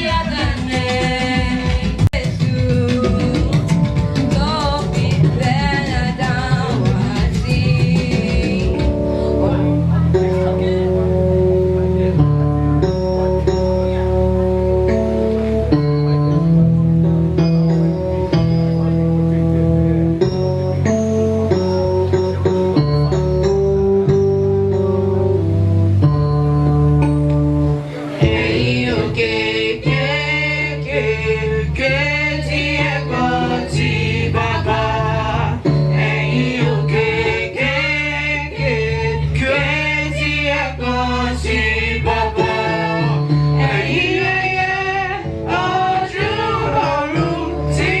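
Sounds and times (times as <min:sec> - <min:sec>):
gospel group singing: 0:00.0 - 0:11.6, 0:27.8 - 0:48.0
church music instruments with bass: 0:00.0 - 0:48.0.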